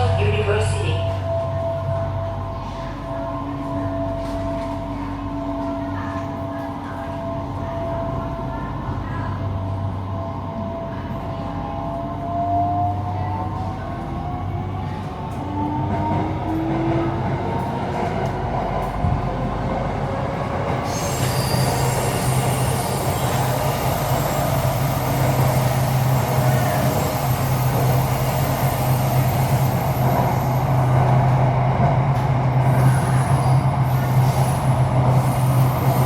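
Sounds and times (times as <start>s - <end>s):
train rolling hum: 0.0s - 36.0s.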